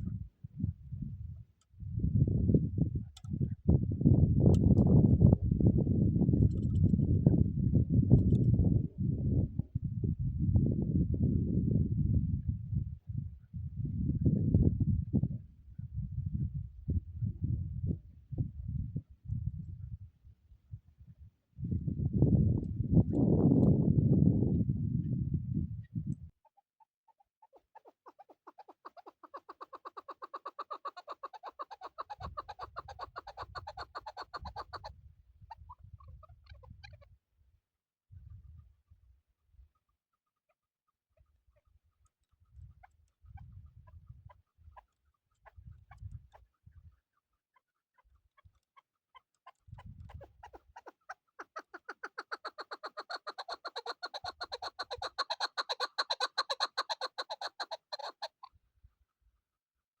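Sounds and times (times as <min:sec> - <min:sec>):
partridge clucking call: 0:27.4 - 0:34.9, 0:49.2 - 0:58.5.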